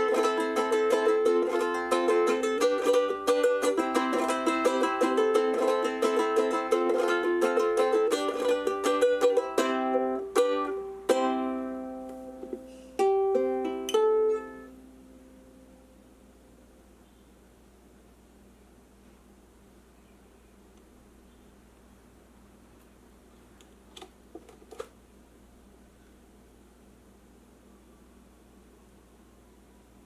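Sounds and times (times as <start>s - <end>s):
ukulele picked notes and chords: 0.0s - 15.8s.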